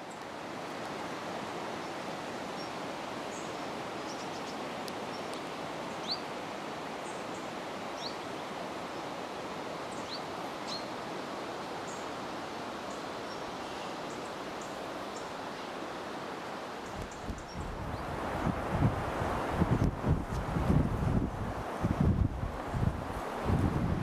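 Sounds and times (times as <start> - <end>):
steady rushing noise: 16.1 - 24.0.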